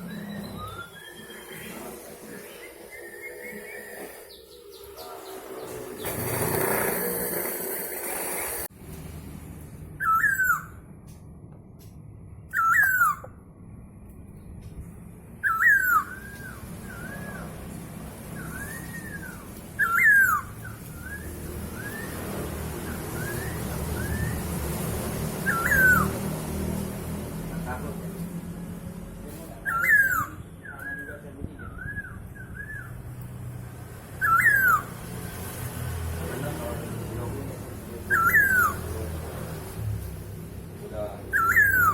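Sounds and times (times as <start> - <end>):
bird whistled calls: 0.0 - 6.2, 10.0 - 10.8, 12.5 - 13.4, 15.4 - 17.6, 18.3 - 24.5, 25.4 - 26.2, 29.6 - 33.0, 34.2 - 35.0, 38.1 - 39.0, 41.3 - 41.9
low background hum: 8.8 - 22.8.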